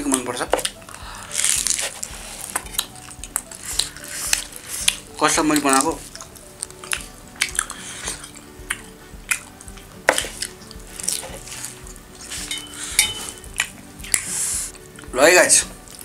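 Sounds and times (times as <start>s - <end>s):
chewing and lip smacks: 6.1s - 11.4s, 13.5s - 14.3s.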